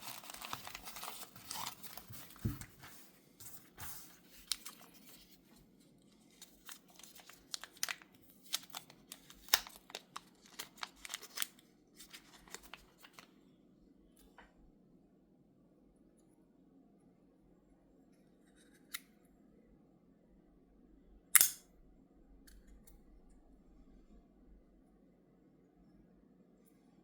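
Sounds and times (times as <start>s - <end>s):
packaging clicks and rustles: 0.0s - 5.3s, 6.4s - 13.3s.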